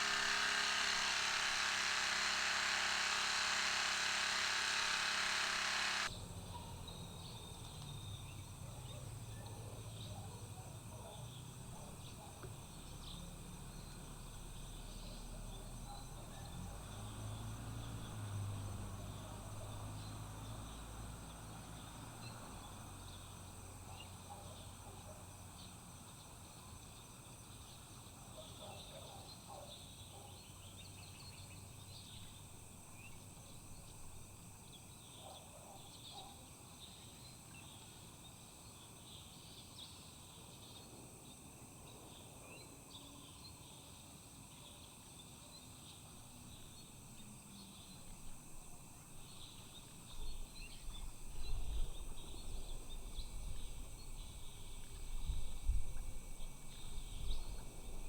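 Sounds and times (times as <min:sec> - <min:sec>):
insects trilling: 0:00.0 - 0:06.1.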